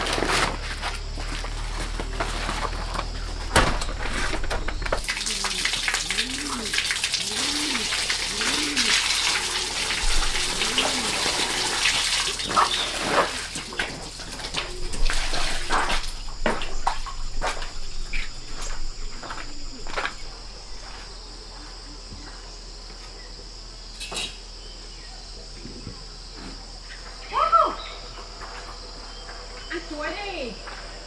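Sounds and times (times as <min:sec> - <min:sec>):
insects chirring: 0:00.0 - 0:31.0
splashes and knocks: 0:03.5 - 0:17.8.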